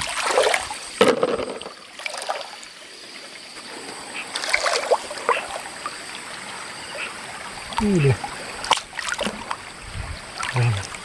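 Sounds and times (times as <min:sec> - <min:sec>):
water splashing: 0:00.0 - 0:11.0
stream rushing: 0:03.4 - 0:11.0.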